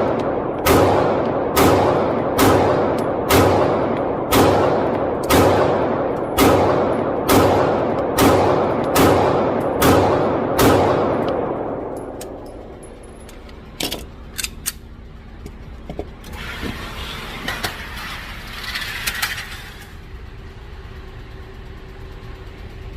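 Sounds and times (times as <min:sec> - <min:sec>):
pistol shots echoing: 0:00.0 - 0:12.5.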